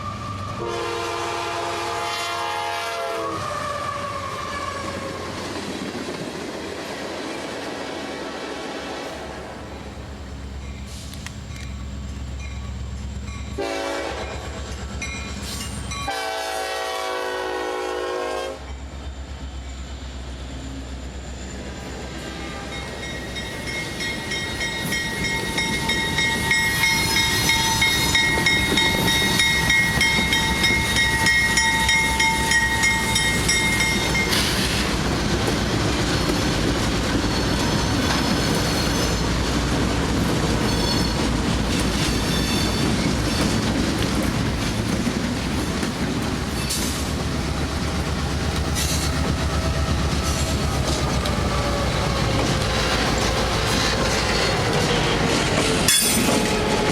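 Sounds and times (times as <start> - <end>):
train horn blasts: 0.0 - 5.2, 8.3 - 9.3, 13.6 - 14.6, 16.0 - 18.8, 22.2 - 23.0, 56.0 - 56.9
train rumbling past: 0.0 - 56.9
wheels clacking on rail joints: 22.8 - 56.9.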